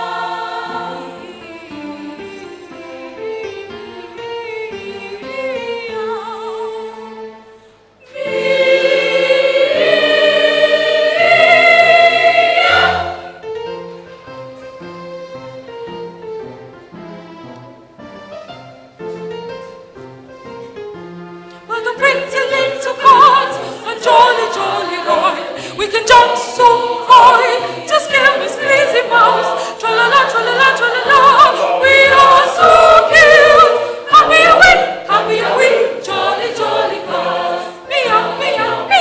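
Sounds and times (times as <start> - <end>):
mixed choir singing operatically: 0.0 - 3.4, 4.4 - 7.3, 8.0 - 13.5, 21.8 - 39.0.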